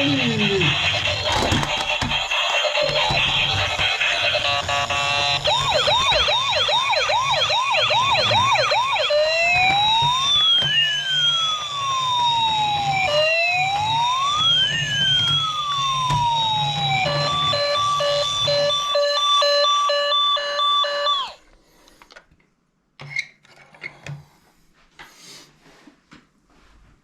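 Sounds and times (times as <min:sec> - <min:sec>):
toy police siren: 0:00.0 - 0:21.4.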